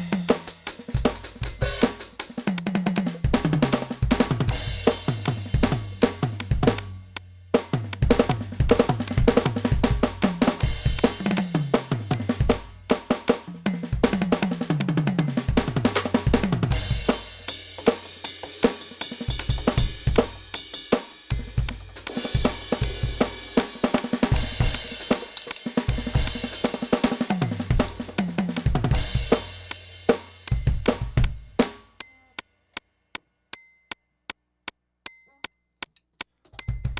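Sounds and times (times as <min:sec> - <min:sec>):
electronic drum kit groove: 0:00.0 - 0:32.4, 0:36.5 - 0:36.9.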